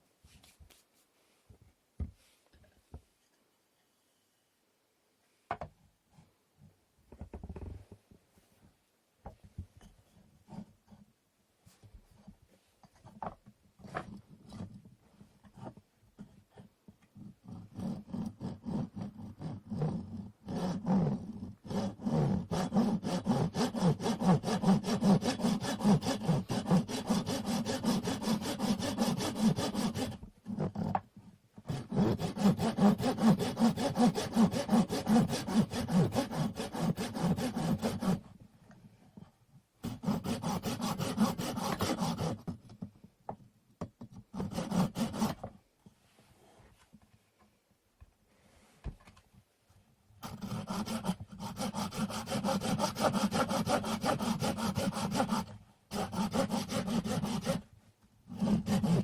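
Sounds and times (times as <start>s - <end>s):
hand saw cutting wood: 17.4s - 31.0s, 31.7s - 38.3s, 39.8s - 42.6s, 44.3s - 45.5s, 50.2s - 57.7s, 58.3s - 59.0s.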